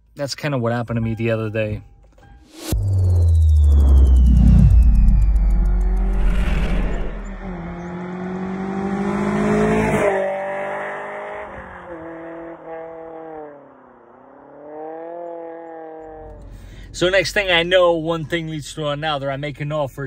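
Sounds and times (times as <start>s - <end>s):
car engine accelerating: 2.5s - 17.7s.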